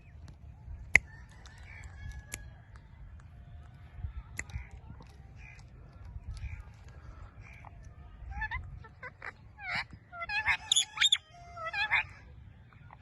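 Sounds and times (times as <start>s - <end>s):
parrot chirping: 9.6s - 12.0s.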